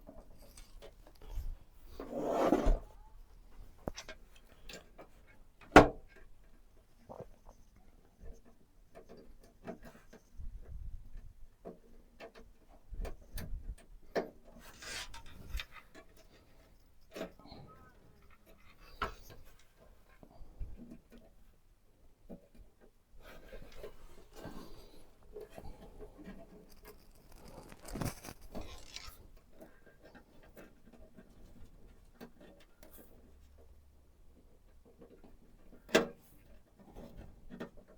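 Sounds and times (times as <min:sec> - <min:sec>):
rustling: 0:23.2 - 0:29.6
rubbing scrape: 0:23.4 - 0:29.3.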